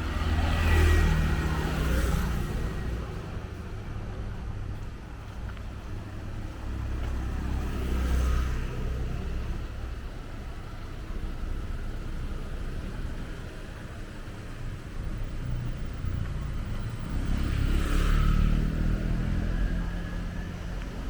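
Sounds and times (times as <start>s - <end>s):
street traffic on wet road: 0.0s - 21.0s
vehicle passing close: 16.5s - 21.0s.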